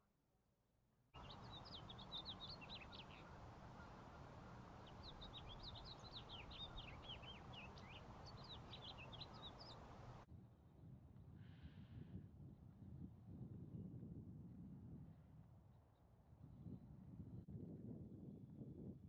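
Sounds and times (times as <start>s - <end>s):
outdoor background noise: 1.2s - 12.0s.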